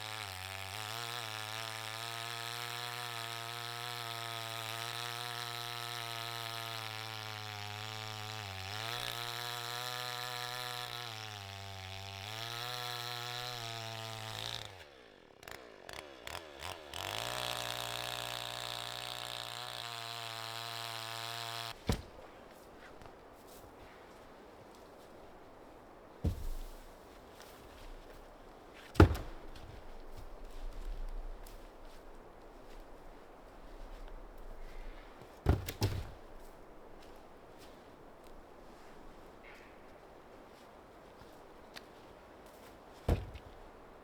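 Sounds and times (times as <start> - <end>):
chainsaw engine running: 0.0 - 22.3, 26.2 - 37.2, 42.6 - 43.8.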